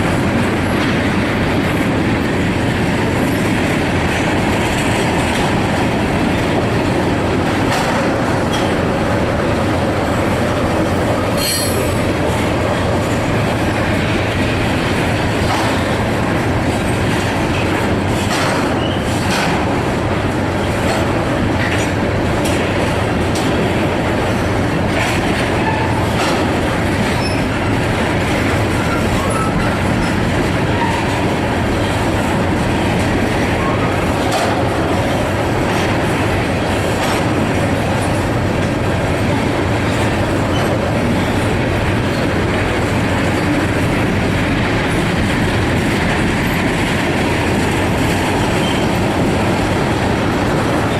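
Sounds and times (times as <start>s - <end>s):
freight train cars rumbling: 0.0s - 50.9s
wheels clicking over rail joints: 0.0s - 50.9s.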